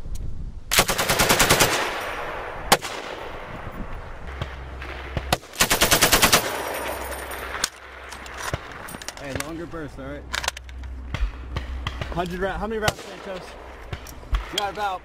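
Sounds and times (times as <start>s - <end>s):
machine gun bursts: 0.7s - 2.0s, 5.6s - 7.6s
rolling gunfire echo: 0.7s - 15.0s.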